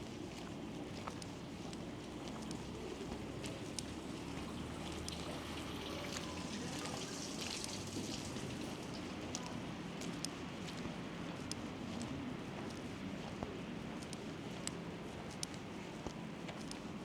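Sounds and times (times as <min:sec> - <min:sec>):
faint ticks: 0:00.3 - 0:06.9, 0:08.9 - 0:17.0.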